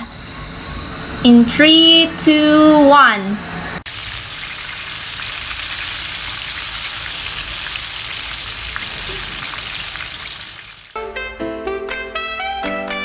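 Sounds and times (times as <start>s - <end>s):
chicken deep-frying in oil: 3.9s - 11.0s
small oil crackles: 3.9s - 11.0s.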